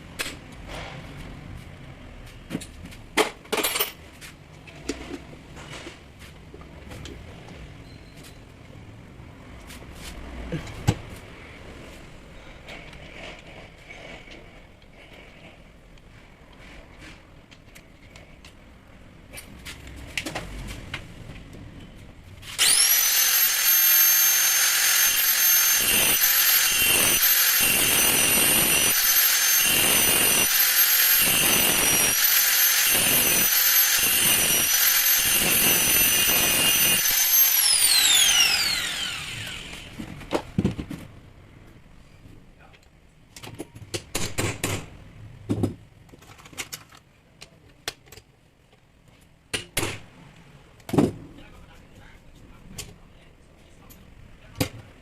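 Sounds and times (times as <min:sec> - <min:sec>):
rotary hammer motor whine: 0:22.6 - 0:40.0.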